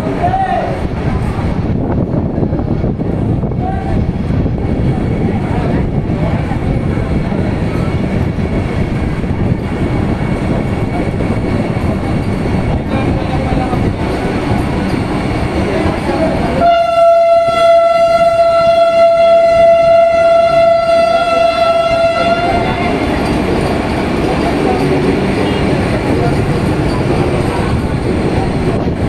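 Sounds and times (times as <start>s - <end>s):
train running past: 0.0s - 29.0s
train horn blast: 16.5s - 23.0s.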